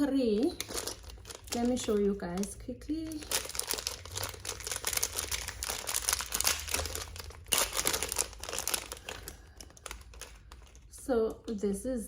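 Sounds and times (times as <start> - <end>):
plastic tearing: 0.0 - 11.0
plastic packaging crinkling: 0.0 - 11.1.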